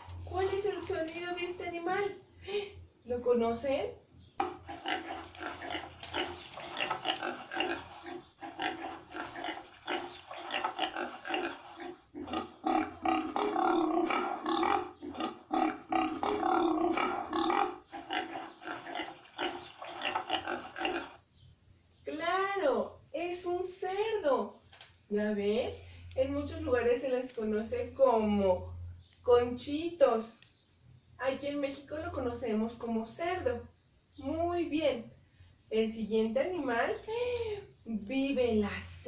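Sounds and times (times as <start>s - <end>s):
pig grunting and oinking: 4.4s - 21.2s.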